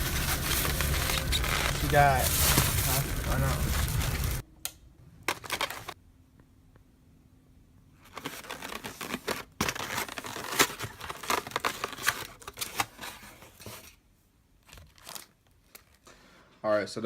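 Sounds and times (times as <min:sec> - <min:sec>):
food packaging crinkling and rustling: 0:00.0 - 0:04.4, 0:05.2 - 0:06.0, 0:08.0 - 0:14.0, 0:14.6 - 0:16.1.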